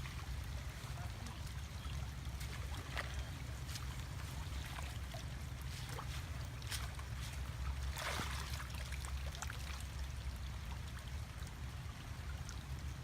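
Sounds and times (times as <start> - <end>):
water sloshing and trickling: 0.0 - 13.0
water splashes: 0.0 - 13.0.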